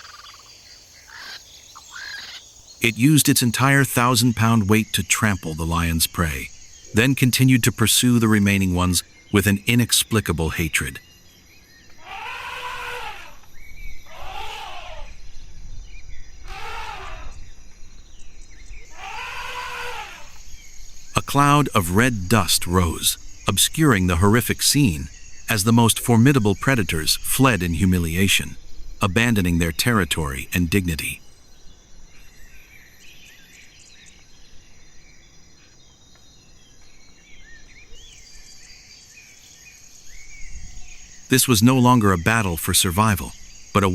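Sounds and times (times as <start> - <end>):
birds chirping: 0.0 - 43.9
insects trilling: 0.0 - 43.9
animal calls rising and falling: 12.0 - 15.2, 16.4 - 17.4, 18.9 - 20.4.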